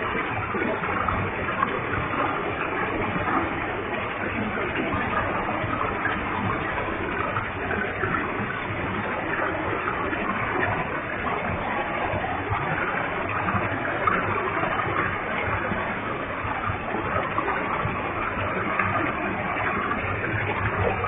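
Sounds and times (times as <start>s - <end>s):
waterfall rushing and splashing: 0.0s - 21.0s.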